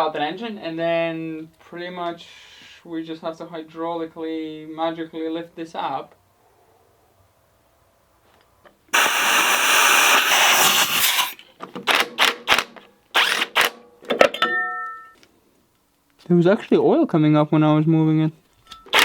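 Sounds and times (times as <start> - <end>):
loud rough metal burst: 9.0 - 11.4.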